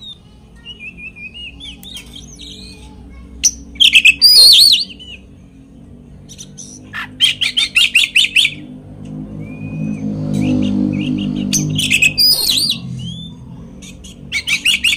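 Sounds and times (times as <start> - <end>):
songbird singing: 0.0 - 14.9
low hum: 8.5 - 14.3.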